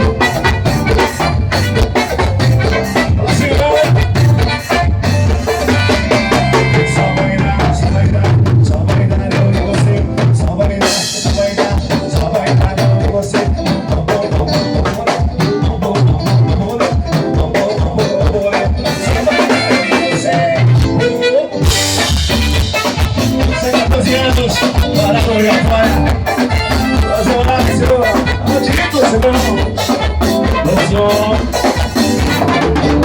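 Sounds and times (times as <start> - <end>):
person singing: 0.0 - 22.1, 22.9 - 33.0
band music with drum beat: 0.0 - 33.0.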